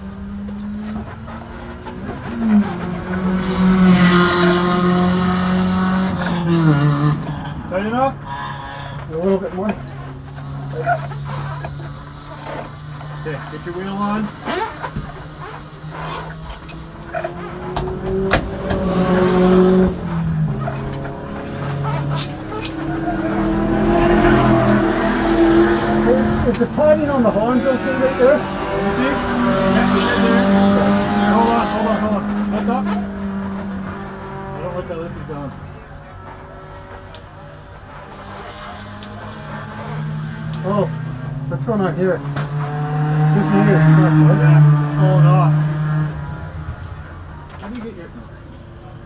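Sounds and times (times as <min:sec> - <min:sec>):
race car engine droning: 0:00.0 - 0:49.0
sharp clicks and knocks: 0:16.4 - 0:19.0.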